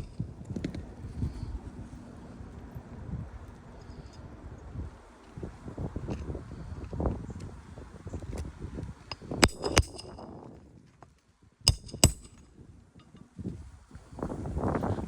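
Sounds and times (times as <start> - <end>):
hammer striking metal: 9.1 - 10.2, 11.7 - 12.4.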